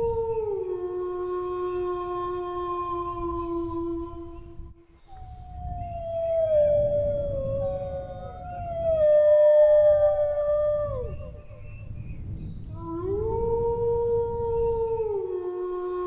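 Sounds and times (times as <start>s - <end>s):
dogs howling: 5.1s - 11.8s.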